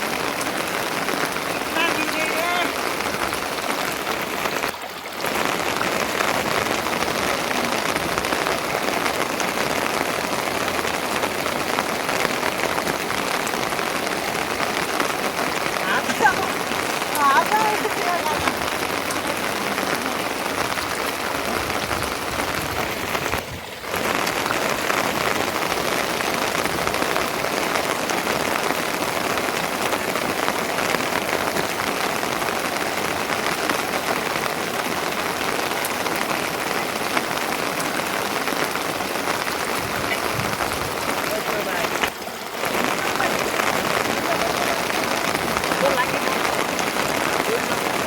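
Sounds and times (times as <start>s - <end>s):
steady rain falling: 0.0s - 48.0s.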